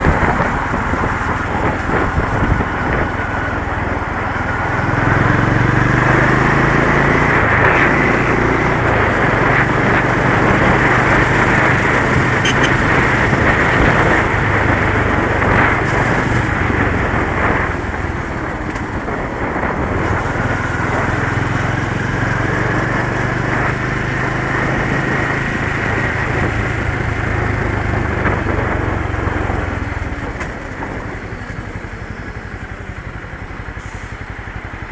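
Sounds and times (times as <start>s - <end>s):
motorcycle engine accelerating: 0.0s - 34.9s
wind and road noise: 0.0s - 34.9s.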